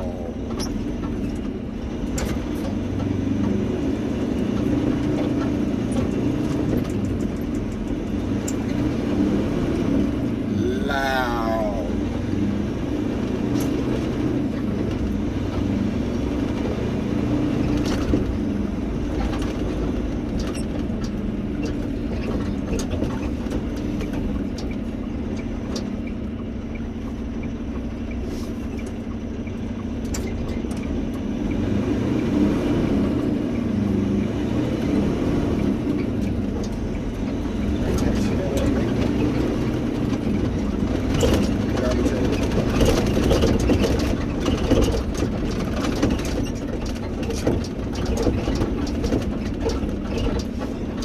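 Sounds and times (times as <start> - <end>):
road noise: 0.0 - 51.0
truck engine drone: 0.0 - 51.0.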